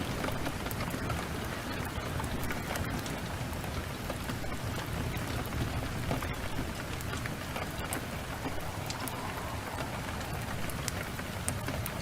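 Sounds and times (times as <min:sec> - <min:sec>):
sharp raindrop ticks: 0:00.0 - 0:12.0
heavy rain hissing: 0:04.6 - 0:12.0
low rumble: 0:08.2 - 0:11.7.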